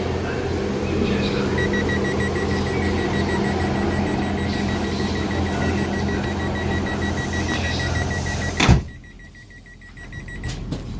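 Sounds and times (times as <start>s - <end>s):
diesel train engine droning: 0.0s - 10.9s
faint rapid pulsing high tone: 0.9s - 8.6s.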